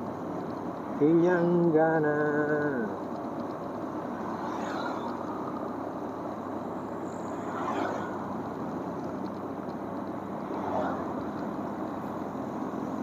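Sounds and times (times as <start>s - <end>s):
motorcycle engine and road noise: 0.0s - 13.0s.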